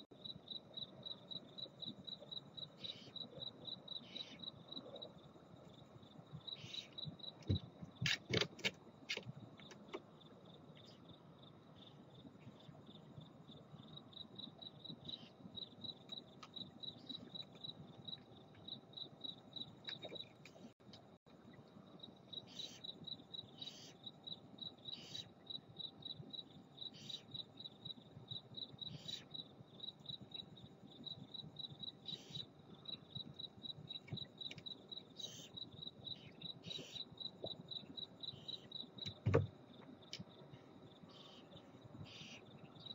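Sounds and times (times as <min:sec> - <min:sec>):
crickets chirping: 0:00.0 - 0:42.9
sharp knocks and scratches: 0:07.4 - 0:10.0.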